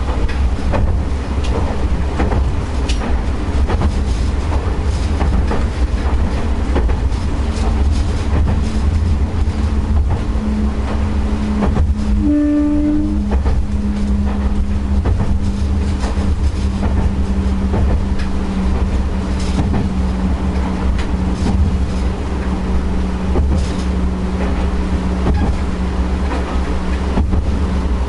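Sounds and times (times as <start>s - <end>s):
diesel railcar engine rumble: 0.0s - 28.0s
wheels clicking over rail joints: 13.2s - 27.8s.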